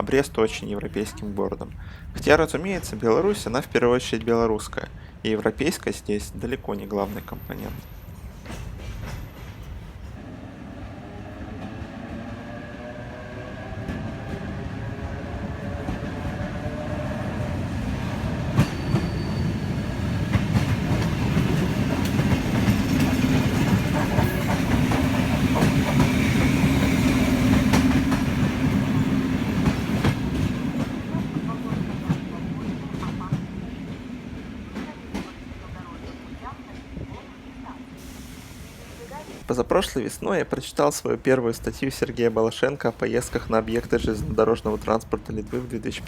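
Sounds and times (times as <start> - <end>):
train rumble: 0.0 - 46.0
train whine rising in pitch: 10.2 - 17.7.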